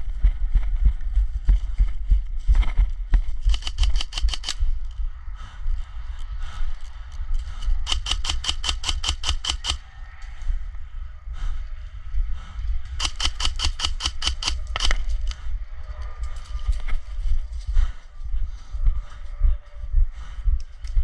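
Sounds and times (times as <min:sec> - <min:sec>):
steady low rumble: 0:00.0 - 0:21.0
airsoft gun bursts of pops: 0:07.9 - 0:09.8, 0:13.0 - 0:14.9.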